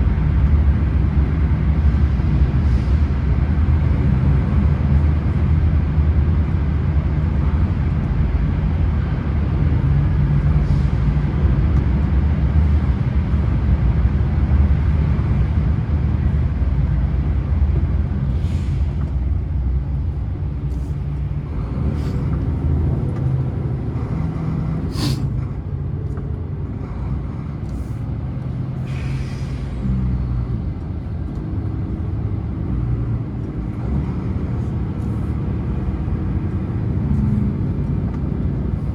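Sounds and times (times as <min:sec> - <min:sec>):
diesel engine running: 0:00.0 - 0:38.9
air brake hisses: 0:18.3 - 0:19.1, 0:24.6 - 0:25.4, 0:28.8 - 0:29.9.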